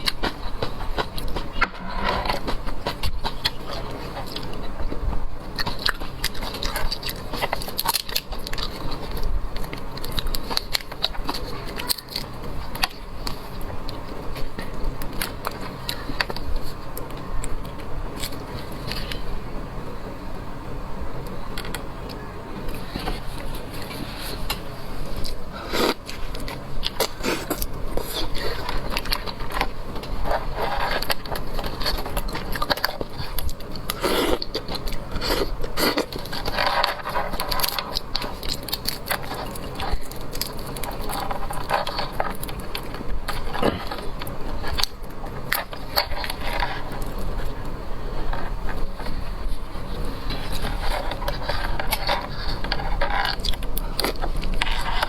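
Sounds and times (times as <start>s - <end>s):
chewing and crunching: 0.0s - 19.4s, 21.2s - 55.0s.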